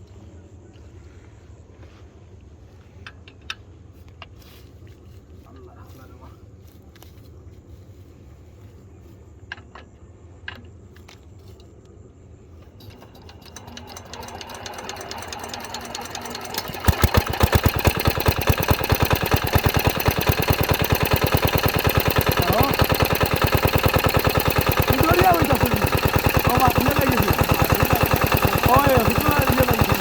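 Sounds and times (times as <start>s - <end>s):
small engine running: 12.8s - 30.0s.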